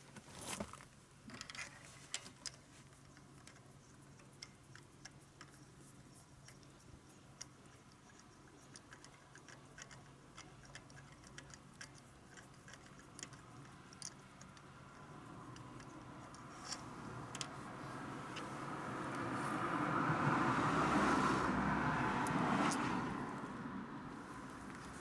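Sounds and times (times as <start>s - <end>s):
tools clicking: 7.4s - 17.6s
broad rushing noise: 16.8s - 25.0s.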